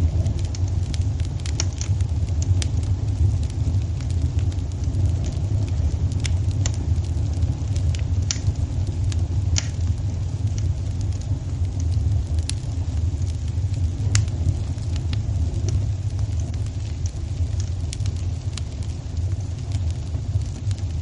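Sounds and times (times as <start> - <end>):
fireplace fire crackling: 0.0 - 21.0.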